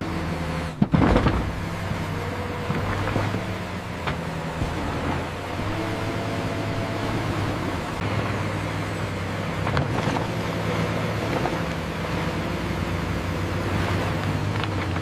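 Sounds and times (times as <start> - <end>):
heavy diesel machine running: 0.0 - 15.0.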